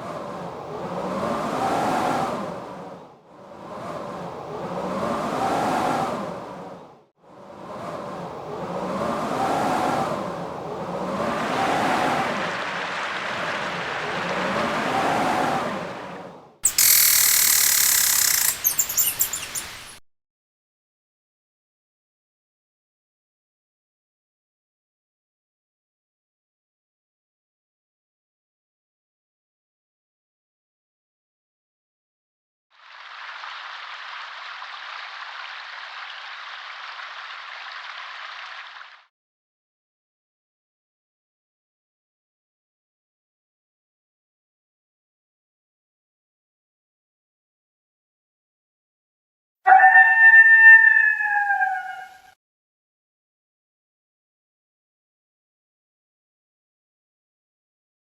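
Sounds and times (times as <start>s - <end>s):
blizzard wind howling: 0.0s - 16.6s, 49.8s - 52.3s
quick high chirps: 16.6s - 20.0s.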